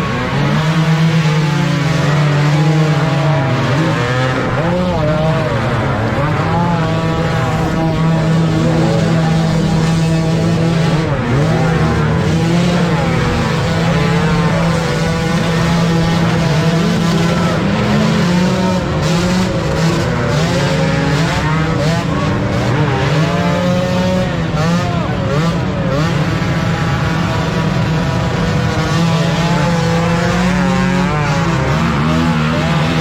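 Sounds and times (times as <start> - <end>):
motocross bike engines revving: 0.0 - 33.0.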